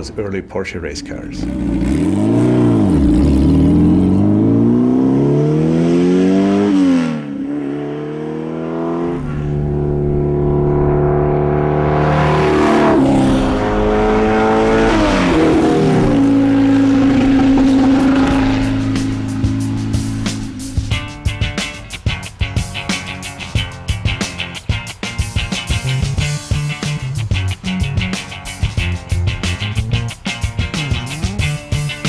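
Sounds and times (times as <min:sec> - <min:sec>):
car engine accelerating: 0:01.0 - 0:21.0.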